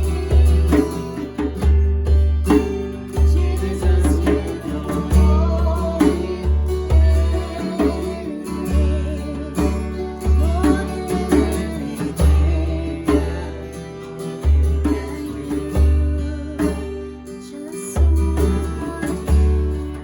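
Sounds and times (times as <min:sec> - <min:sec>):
deep bass notes: 0:00.0 - 0:13.4
guitar: 0:00.0 - 0:20.0.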